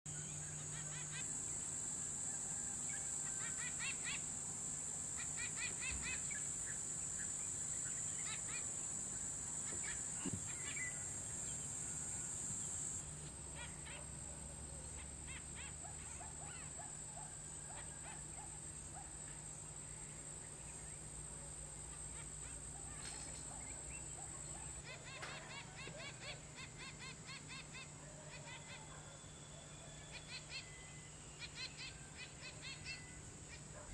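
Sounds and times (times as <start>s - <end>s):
high-pitched insect drone: 0.1s - 14.0s
birds chirping and calling: 3.0s - 4.3s, 5.2s - 8.9s, 9.5s - 12.9s, 22.0s - 29.1s, 30.0s - 33.9s.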